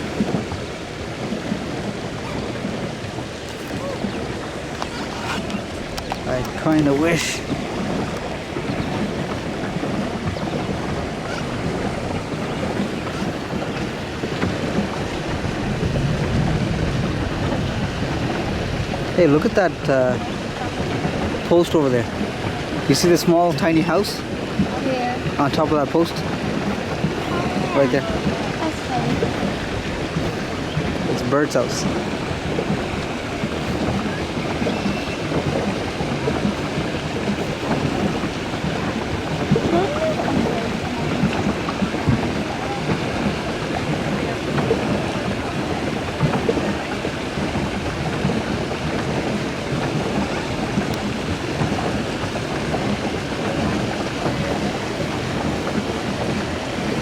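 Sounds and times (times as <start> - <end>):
paddle wheel churning water: 0.0 - 57.0
wind buffeting microphone: 0.0 - 57.0.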